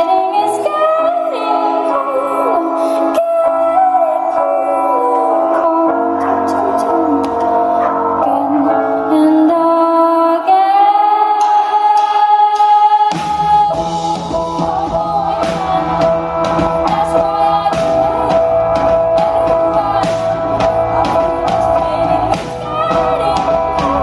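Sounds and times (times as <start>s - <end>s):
woman singing wordless notes: 0.0s - 24.0s
bass and drums beat: 11.4s - 24.0s.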